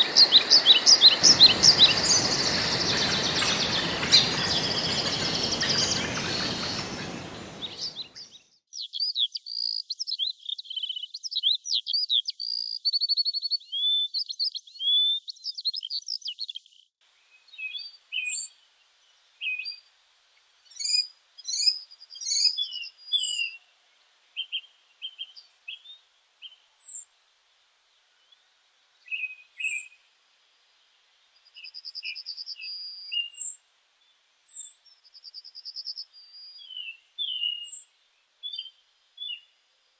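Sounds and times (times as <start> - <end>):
rushing noise: 0.0 - 8.1
birds chirping and whistling: 0.0 - 8.3, 36.3 - 37.8
bird warbling song: 0.0 - 13.0, 13.6 - 18.6, 20.6 - 23.7, 24.3 - 27.1, 29.0 - 30.0, 31.4 - 33.6, 34.4 - 39.6.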